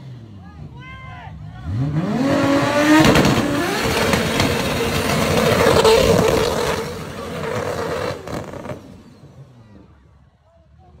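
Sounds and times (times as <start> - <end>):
sports car accelerating hard: 1.6 - 9.5.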